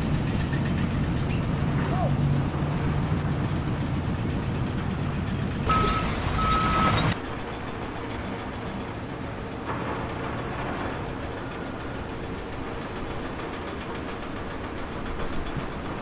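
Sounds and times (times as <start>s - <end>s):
heavy vehicle engine running: 0.0s - 16.0s
short high warning beeps: 5.7s - 7.2s.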